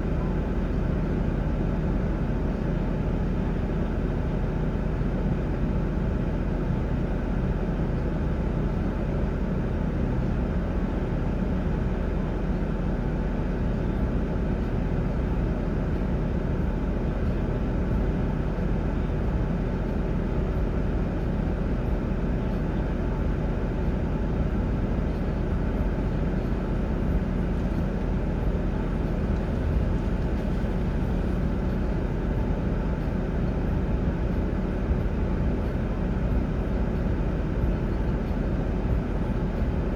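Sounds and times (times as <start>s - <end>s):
vehicle engine rumbling: 13.4s - 39.9s.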